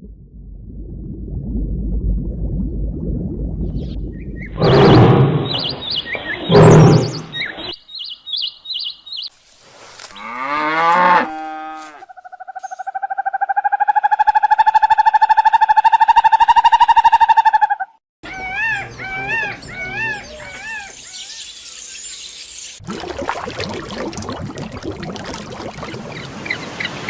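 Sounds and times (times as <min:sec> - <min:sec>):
falling animal calls: 0:04.6 - 0:07.7
high wavy animal chirps: 0:04.6 - 0:07.8
rapidly pulsing animal call: 0:12.2 - 0:21.5.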